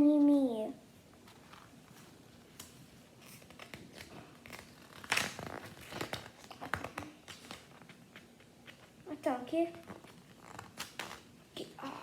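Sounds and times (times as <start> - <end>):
paper crinkling and rustling: 1.2 - 9.0.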